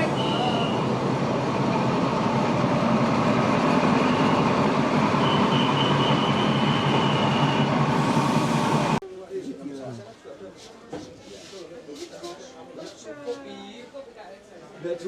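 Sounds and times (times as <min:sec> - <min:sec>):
train rumbling on rails: 0:00.0 - 0:09.0.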